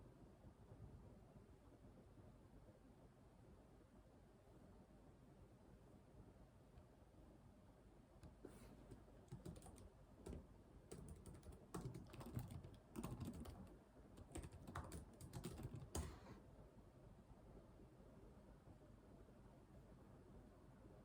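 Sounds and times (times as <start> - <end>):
typing on computer keyboard: 8.2 - 16.3.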